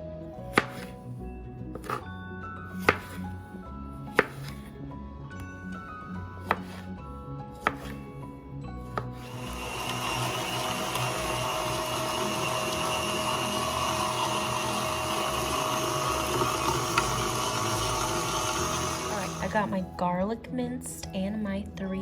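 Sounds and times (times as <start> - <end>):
background music: 0.0 - 22.0
knife chopping on cutting board: 0.5 - 1.0, 1.8 - 2.1, 2.8 - 3.4, 4.1 - 4.7, 6.4 - 6.9, 7.5 - 8.1, 8.9 - 19.4
kitchen appliance motor running: 9.0 - 19.7.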